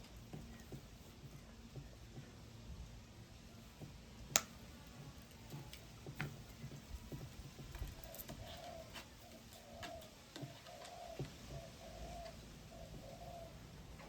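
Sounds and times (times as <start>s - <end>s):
dove cooing: 7.5s - 14.0s.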